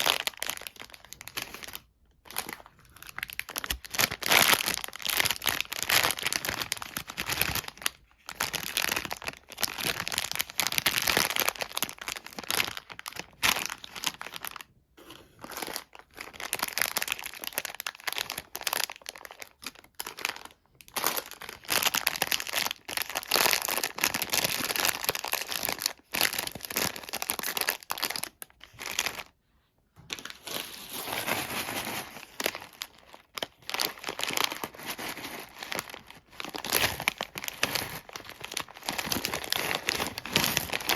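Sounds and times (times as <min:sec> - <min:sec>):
sweet wrapper crinkling: 0:00.0 - 0:29.4, 0:30.0 - 0:40.9.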